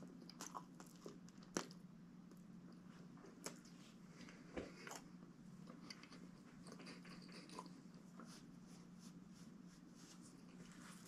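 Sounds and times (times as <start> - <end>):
person chewing sandwich: 0.0 - 3.7, 4.6 - 8.3
low steady hum: 0.0 - 11.0.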